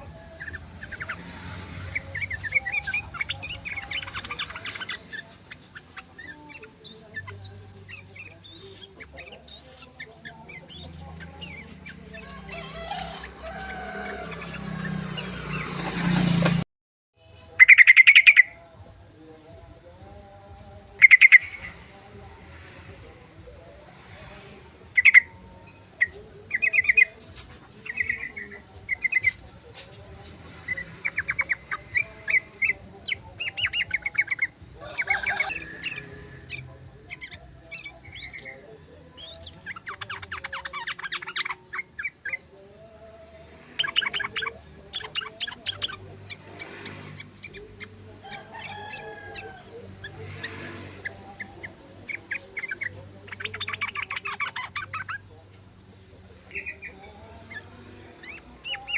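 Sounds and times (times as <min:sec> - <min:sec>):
bird chattering trills: 0:21.0 - 0:21.8.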